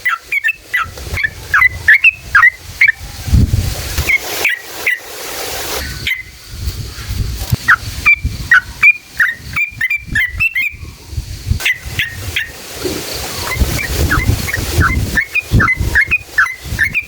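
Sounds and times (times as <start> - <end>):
bulbul chirping song: 0.0 - 3.0, 7.6 - 10.9, 11.6 - 12.6, 13.4 - 17.0.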